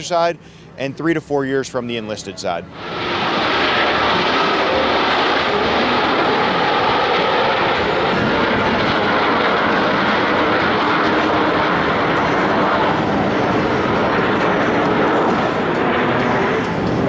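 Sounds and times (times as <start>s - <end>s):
aircraft engine noise: 0.0s - 17.0s.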